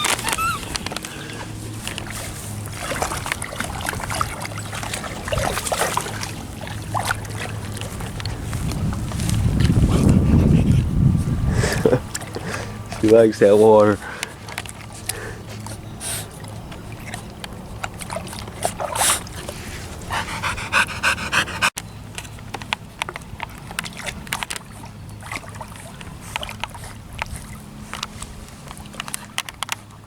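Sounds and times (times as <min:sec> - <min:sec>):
dog whining: 0:00.0 - 0:01.0
dog panting: 0:09.6 - 0:11.0, 0:19.9 - 0:21.8.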